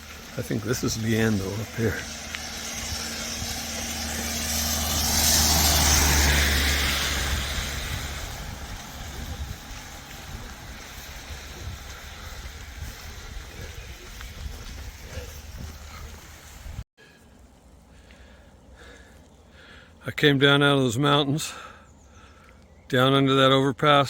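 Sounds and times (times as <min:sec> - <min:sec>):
vehicle engine passing: 0:00.0 - 0:16.8.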